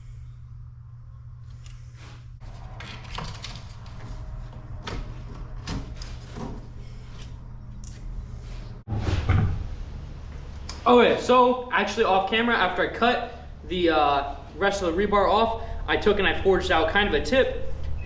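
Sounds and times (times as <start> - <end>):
steady low hum: 0.0 - 18.0
loud thump: 8.9 - 9.8.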